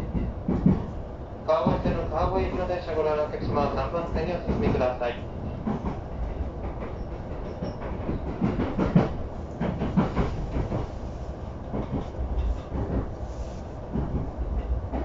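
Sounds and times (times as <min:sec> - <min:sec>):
train rumble: 0:00.0 - 0:15.0
irregular knocks and clanks: 0:06.6 - 0:10.9.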